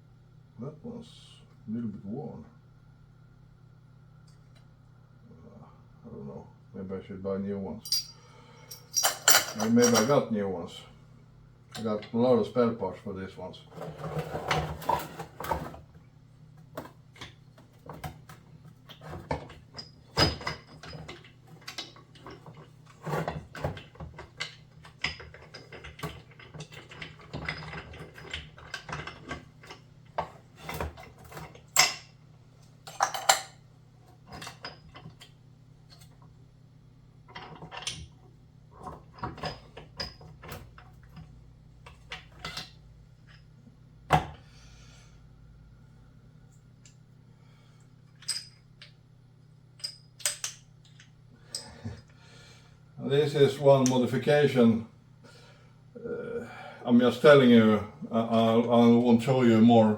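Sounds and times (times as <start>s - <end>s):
metal gearbox parts clinking: 7.8s - 10.1s.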